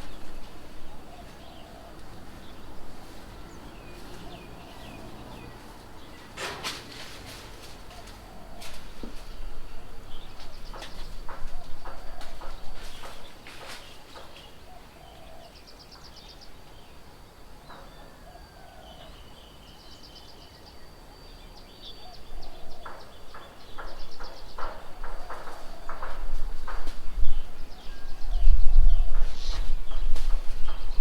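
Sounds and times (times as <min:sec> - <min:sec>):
birds trilling: 0:00.0 - 0:31.0
sharp taps and knocks: 0:10.4 - 0:14.4.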